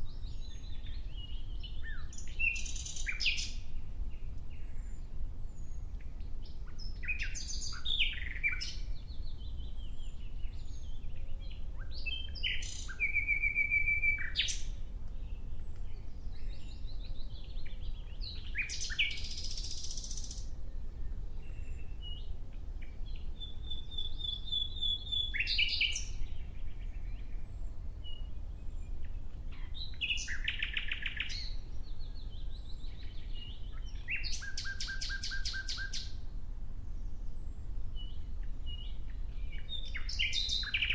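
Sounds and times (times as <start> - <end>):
nightingale singing: 0.0 - 36.2, 38.0 - 40.9
faint low rumble: 14.3 - 19.4, 20.3 - 34.2.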